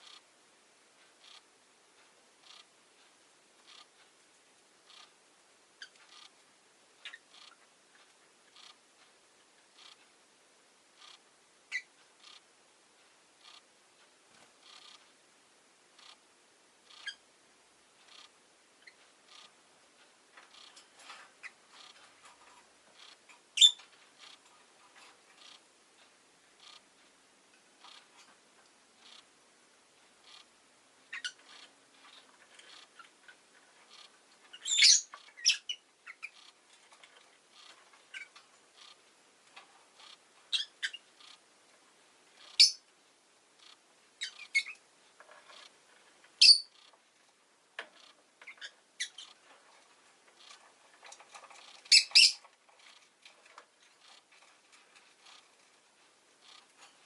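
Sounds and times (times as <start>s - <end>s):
bird chirping high and sharp: 23.6s - 23.8s, 34.5s - 36.5s, 40.5s - 41.0s, 42.5s - 42.8s, 46.4s - 46.8s, 51.9s - 52.4s.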